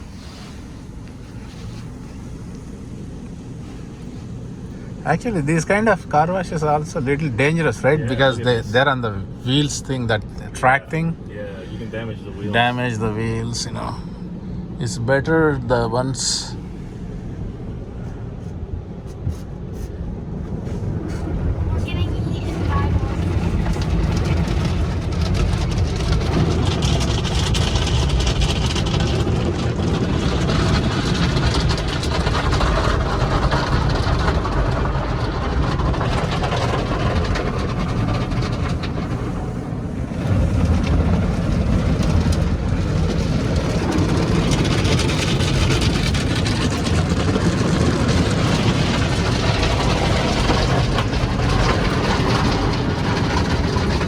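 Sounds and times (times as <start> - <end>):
car wash brushes and water spray: 0.0 - 14.7, 15.8 - 54.0.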